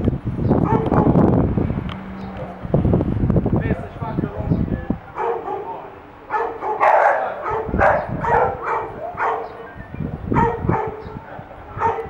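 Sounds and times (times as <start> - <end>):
dog barking: 0.5 - 1.4, 5.1 - 12.0.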